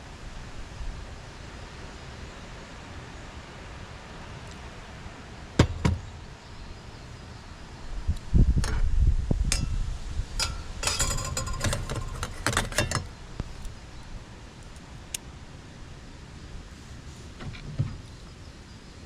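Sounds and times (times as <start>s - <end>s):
sharp knocks: 5.6s - 6.1s
ringing metallic clinks: 10.4s - 13.1s.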